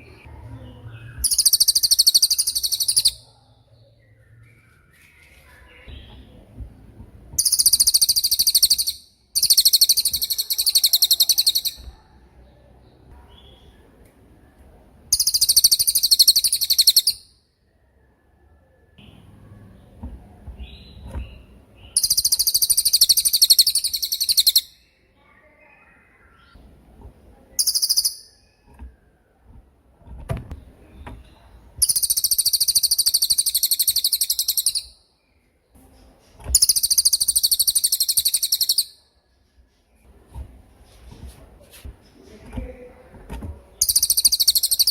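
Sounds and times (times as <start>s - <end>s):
faint soft chirps: 0.0s - 40.1s
songbird high-pitched rattling trill: 1.2s - 3.2s, 7.4s - 11.9s, 15.1s - 17.3s, 21.9s - 24.7s, 27.6s - 28.5s, 31.8s - 35.0s, 36.6s - 39.0s, 43.8s - 44.9s.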